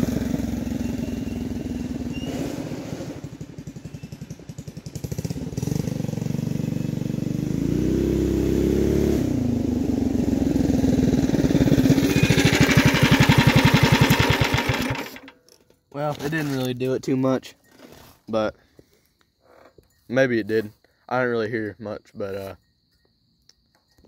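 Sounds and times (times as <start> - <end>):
mini bike engine passing by: 0.0 - 15.3.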